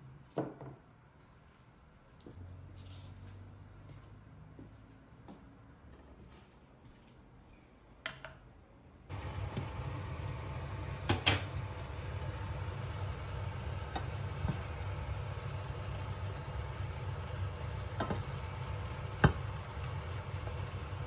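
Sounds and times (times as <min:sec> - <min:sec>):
food sizzling in a pan: 0:09.1 - 0:21.0
steady hum: 0:09.1 - 0:21.0.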